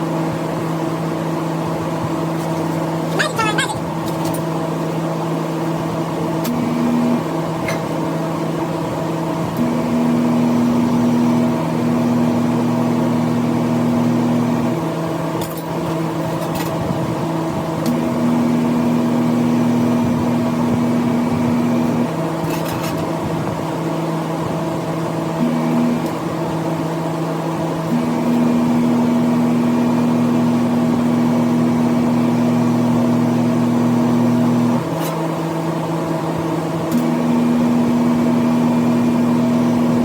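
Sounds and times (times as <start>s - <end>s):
machine hum: 0.0s - 40.0s
higher-pitched tone: 3.1s - 3.8s.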